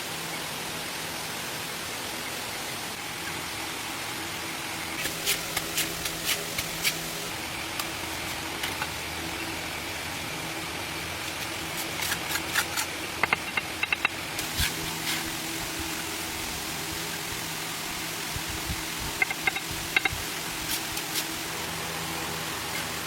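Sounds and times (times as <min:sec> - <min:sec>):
steady low hum: 0:00.0 - 0:23.0
hand tools tapping on brick: 0:13.2 - 0:14.1, 0:19.2 - 0:20.2.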